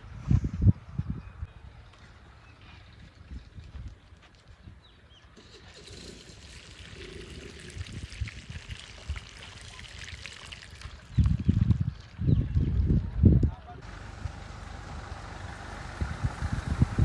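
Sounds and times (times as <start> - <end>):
water pouring and trickling: 5.4 - 12.2.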